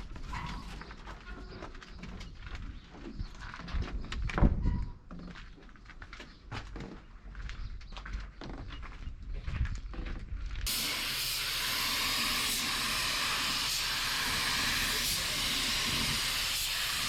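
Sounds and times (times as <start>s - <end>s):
spray gun air hiss: 10.7s - 17.0s.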